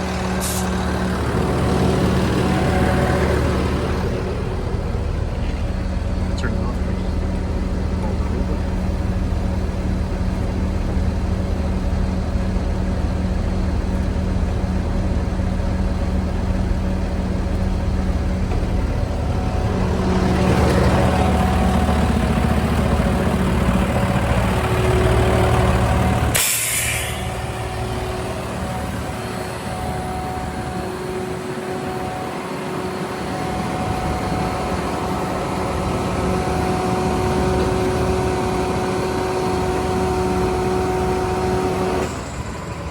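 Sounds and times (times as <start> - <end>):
truck engine running: 0.0 - 42.9
sharp air hiss: 0.4 - 0.8, 26.3 - 27.3.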